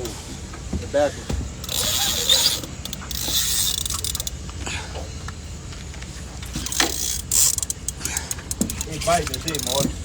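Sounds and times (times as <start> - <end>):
fishing reel clicking and rasping: 1.6 - 4.4, 6.5 - 10.0.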